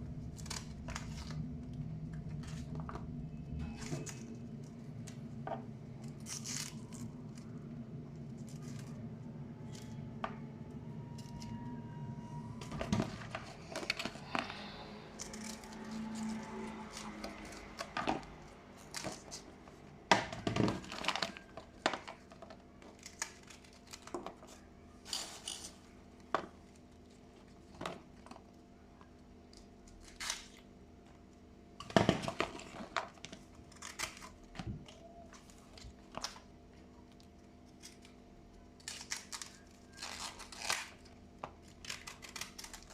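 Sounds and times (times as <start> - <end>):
low hum: 0.0 - 22.5.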